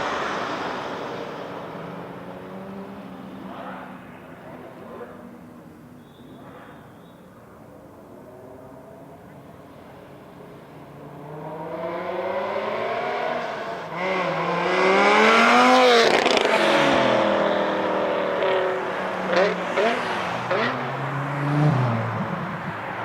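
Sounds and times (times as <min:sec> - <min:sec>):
sports car accelerating past: 0:00.0 - 0:04.1, 0:10.6 - 0:23.0.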